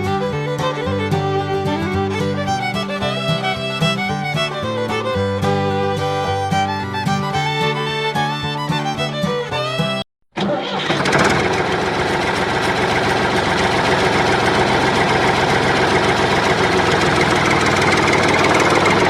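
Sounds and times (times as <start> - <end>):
motor running: 10.9 - 19.0.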